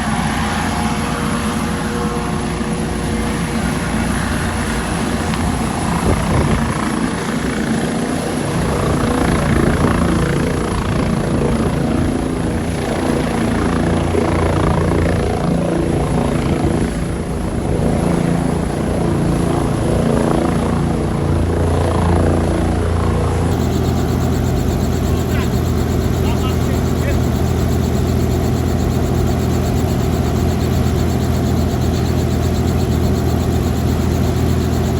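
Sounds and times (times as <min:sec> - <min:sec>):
helicopter rotor and turbine drone: 0:00.0 - 0:34.9.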